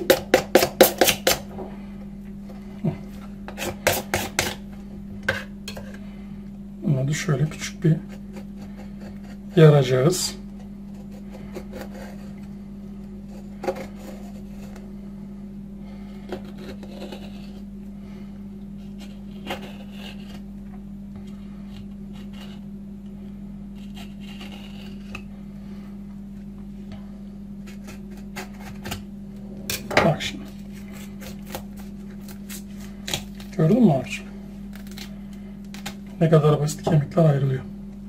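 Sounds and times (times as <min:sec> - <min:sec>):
steady low hum: 0:00.0 - 0:38.0
knife scraping along bones: 0:07.8 - 0:09.8, 0:10.8 - 0:12.5, 0:13.2 - 0:14.8, 0:16.2 - 0:17.7, 0:18.8 - 0:20.5, 0:21.7 - 0:22.7, 0:23.8 - 0:25.3, 0:27.6 - 0:29.0, 0:29.7 - 0:33.8.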